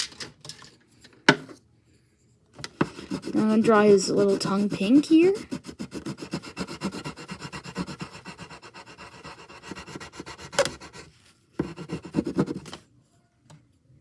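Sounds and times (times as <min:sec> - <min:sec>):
colouring strokes on paper: 0:02.7 - 0:12.8.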